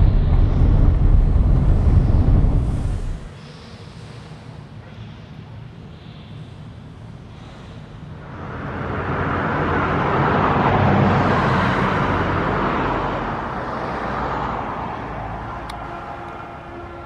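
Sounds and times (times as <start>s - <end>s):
vehicle passing by: 8.2s - 17.0s.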